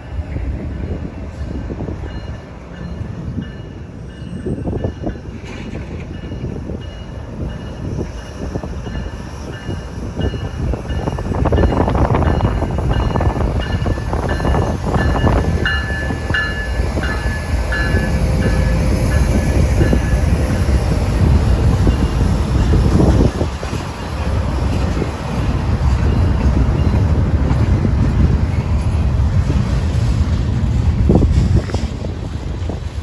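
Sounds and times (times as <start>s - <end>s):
freight train rumbling: 0.0s - 33.0s
train wheel clatter: 0.0s - 33.0s.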